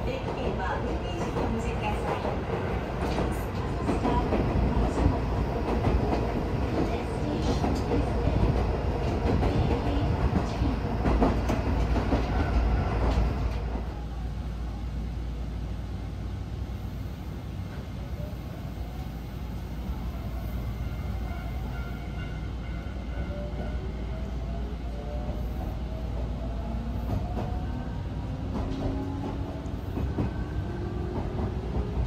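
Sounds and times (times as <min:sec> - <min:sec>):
train running rumble: 0:00.0 - 0:14.0, 0:25.0 - 0:32.0.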